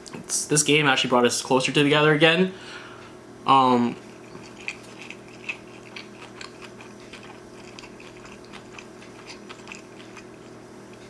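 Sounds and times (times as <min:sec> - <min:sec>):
wet mouth chewing clicks: 0:04.2 - 0:11.0.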